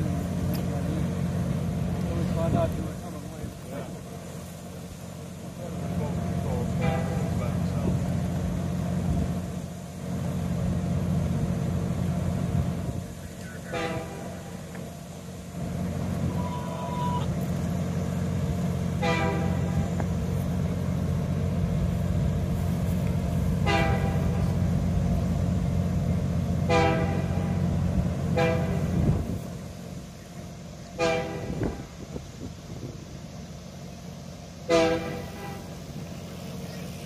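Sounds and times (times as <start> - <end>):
train low rumble: 0.0 - 37.0
short honk-like tones: 6.8 - 7.3, 19.0 - 19.8, 28.3 - 28.8, 34.7 - 35.8.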